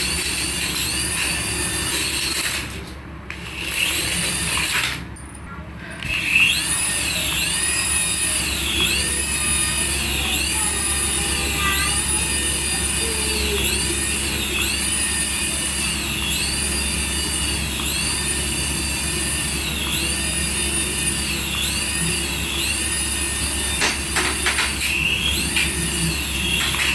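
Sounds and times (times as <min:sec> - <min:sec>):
toy siren-like electronic tone: 0:06.4 - 0:24.0.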